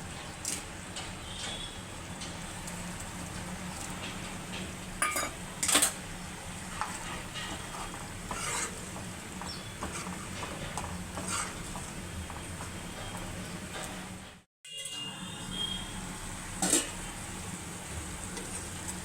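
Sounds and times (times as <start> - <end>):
low sizzle: 0.0 - 14.5, 15.4 - 19.0
spatula scraping a frying pan: 6.6 - 12.0.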